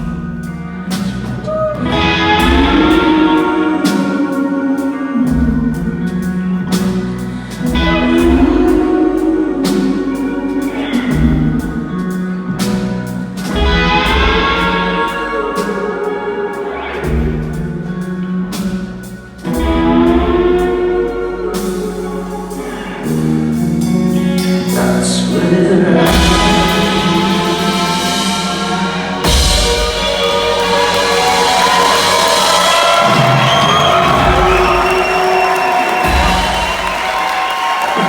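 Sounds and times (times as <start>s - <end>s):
drums: 0.0s - 38.0s
electric guitar: 0.0s - 38.0s
person singing: 20.1s - 32.7s.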